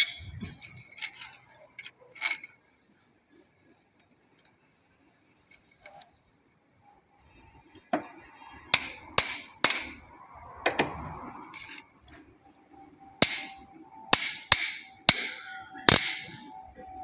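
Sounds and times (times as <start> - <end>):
metal tools clanking on engine parts: 0.0 - 2.5.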